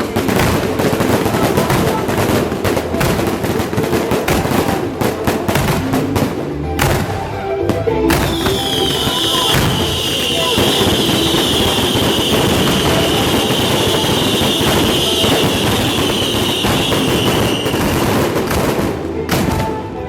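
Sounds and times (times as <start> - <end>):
fireworks crackling: 0.0 - 20.0.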